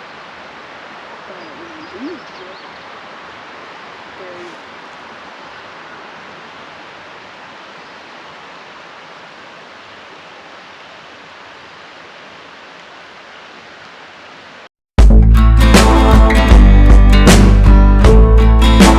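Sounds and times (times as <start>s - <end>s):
water rushing: 0.0s - 14.7s.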